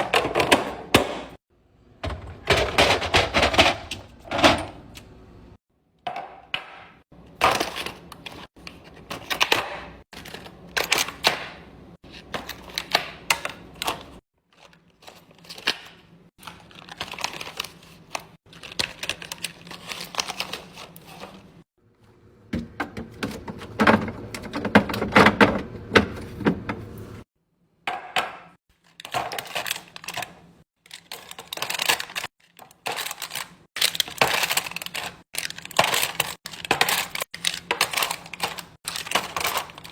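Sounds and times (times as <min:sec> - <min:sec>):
items set down with clicks and thunks: 0:02.0 - 0:05.1, 0:22.5 - 0:27.2
packaging rustling: 0:16.4 - 0:21.6, 0:28.8 - 0:39.9.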